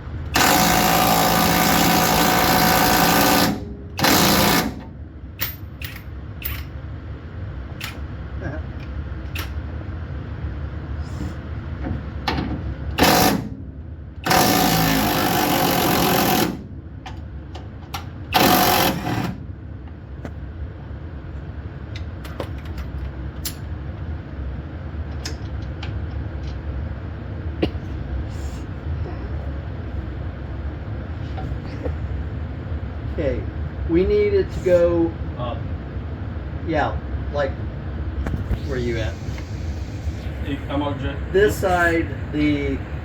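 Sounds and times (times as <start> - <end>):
impact wrench hammering on bolt: 0.4 - 4.8, 12.3 - 13.5, 18.4 - 19.3.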